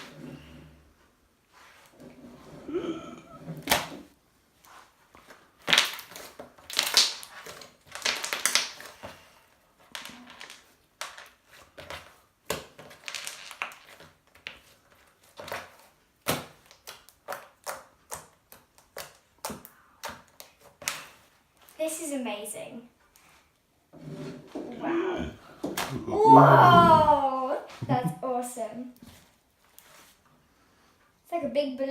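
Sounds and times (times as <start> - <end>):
slime crackling and popping: 5.6 - 9.0.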